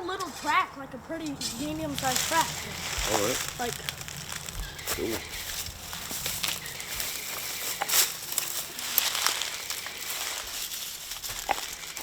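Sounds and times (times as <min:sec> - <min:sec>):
branches cracking: 0:00.0 - 0:12.0
dry brush rustling and crackling: 0:00.0 - 0:12.0.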